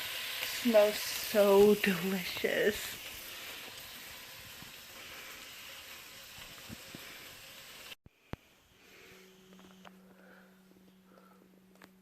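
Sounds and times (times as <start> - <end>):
bacon sizzling in a pan: 0.0 - 8.0.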